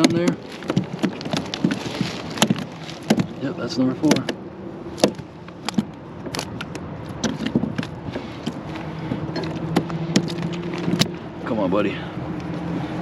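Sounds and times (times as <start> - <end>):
gear knocking on plastic kayak: 0.0 - 3.4, 5.0 - 11.1.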